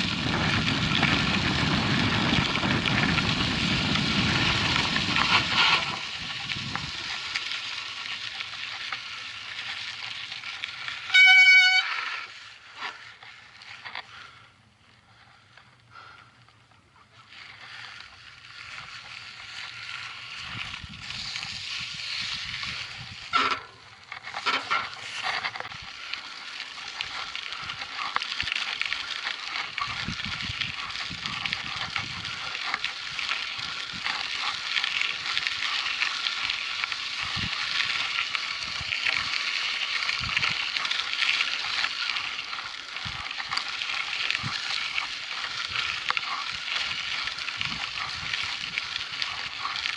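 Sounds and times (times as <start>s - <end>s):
bike knocks and rattles: 0.0s - 7.3s, 22.7s - 25.8s
bike tyres crunching on gravel: 0.0s - 49.9s.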